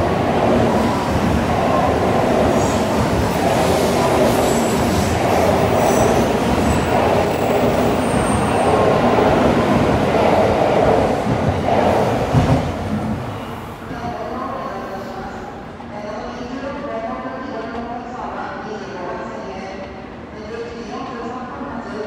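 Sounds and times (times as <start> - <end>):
train wheels rushing on rails: 0.0 - 13.8.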